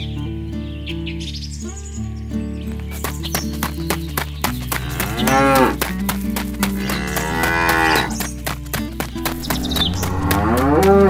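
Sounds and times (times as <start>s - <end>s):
cow mooing: 4.8s - 5.8s, 6.8s - 8.2s, 9.6s - 11.0s.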